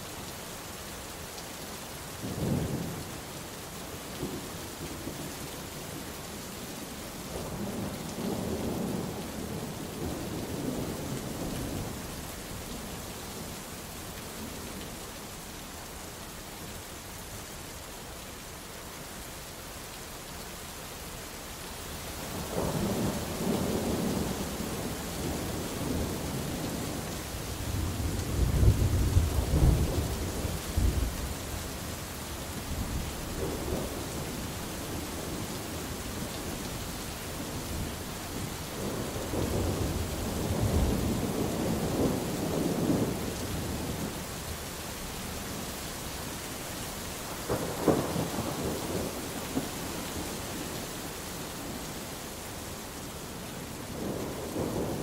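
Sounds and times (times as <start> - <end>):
steady rain: 0.0 - 55.0
rolling thunder: 22.5 - 31.6, 47.2 - 50.6, 53.9 - 55.0.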